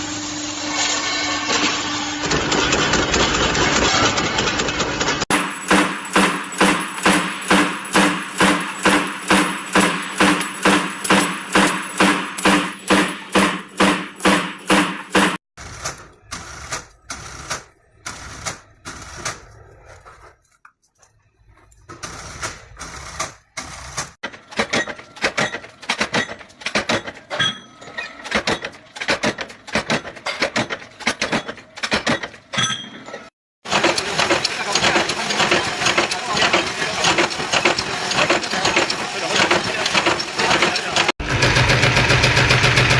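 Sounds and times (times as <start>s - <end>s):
machines striking metal: 0.8s - 19.4s, 33.7s - 42.9s.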